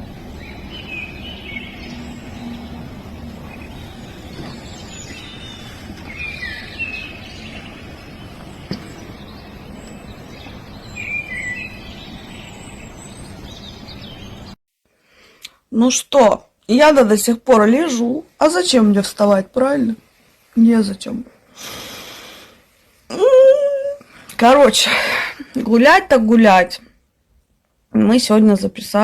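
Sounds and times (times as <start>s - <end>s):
small birds chirping: 0.0s - 14.6s
steady low background noise: 0.0s - 14.6s.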